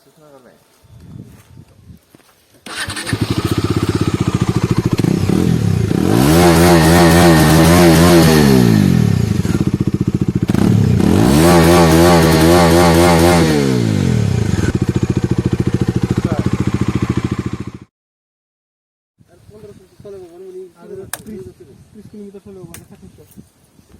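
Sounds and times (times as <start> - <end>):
motorcycle engine idling and revving: 2.7 - 17.9.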